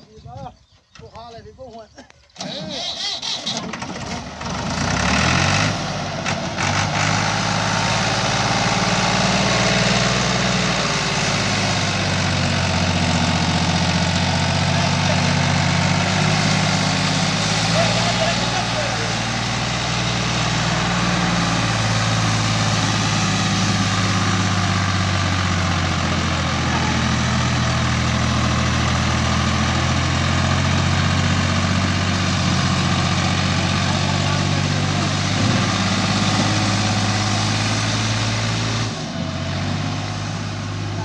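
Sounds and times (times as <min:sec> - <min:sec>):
tractor diesel engine running: 0:02.3 - 0:41.0.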